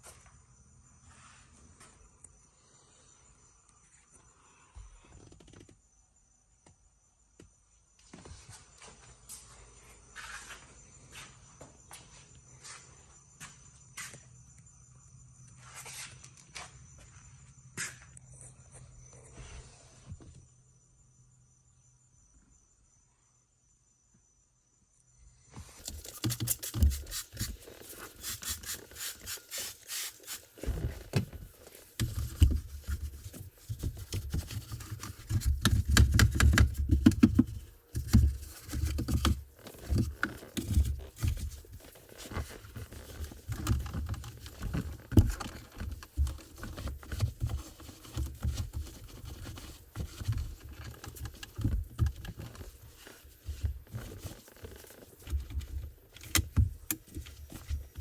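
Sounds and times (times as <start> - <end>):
scraping and rubbing: 25.8 - 58.0
dull knocks and thuds: 30.6 - 58.0.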